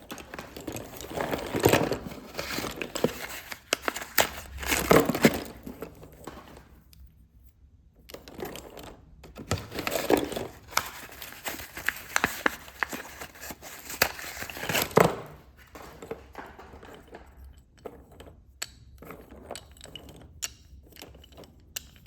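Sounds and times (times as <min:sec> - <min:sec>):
slate pencils crunching: 0:00.0 - 0:06.6, 0:09.3 - 0:17.5.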